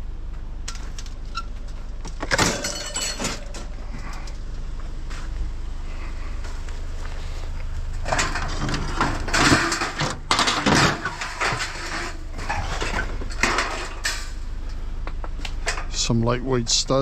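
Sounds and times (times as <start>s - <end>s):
vehicle idling: 0.0s - 17.0s
scrap metal clattering: 0.7s - 4.4s, 8.0s - 14.4s.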